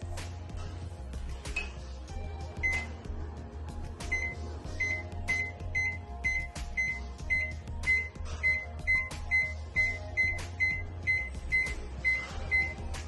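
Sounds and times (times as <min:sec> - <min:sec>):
short high beeps: 0:04.1 - 0:12.8.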